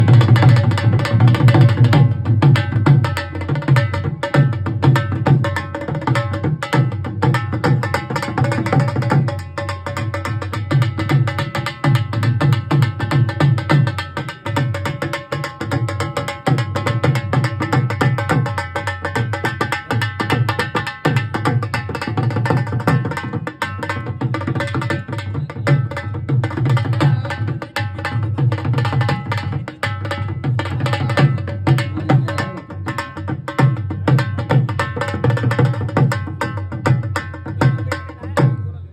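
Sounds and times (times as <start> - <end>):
dhol drum rhythm: 0.0 - 38.9.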